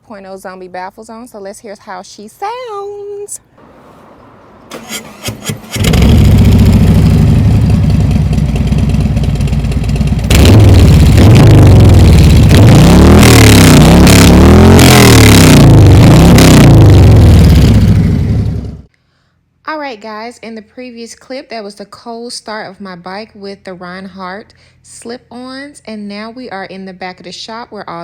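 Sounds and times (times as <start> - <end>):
motorcycle engine idling and revving: 3.6 - 18.9
engine cranking: 4.6 - 11.6.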